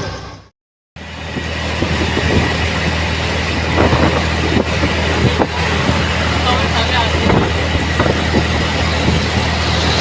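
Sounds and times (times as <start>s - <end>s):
auto rickshaw engine running: 0.0s - 10.0s
engine rattling: 0.0s - 10.0s.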